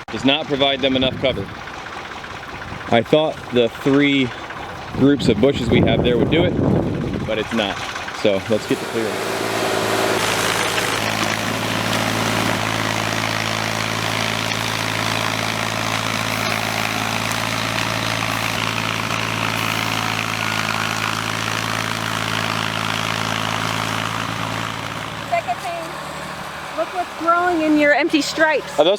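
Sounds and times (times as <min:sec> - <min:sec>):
tractor engine running: 0:00.3 - 0:28.9.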